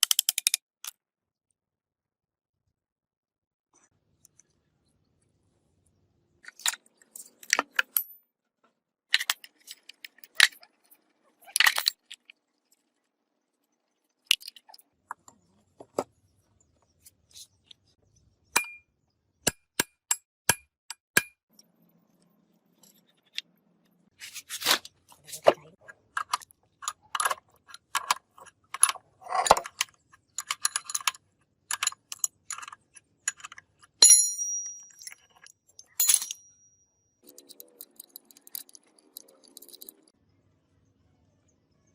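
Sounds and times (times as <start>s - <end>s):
metal parts and tools clinking: 6.4s - 8.2s, 9.1s - 12.4s, 24.3s - 40.1s.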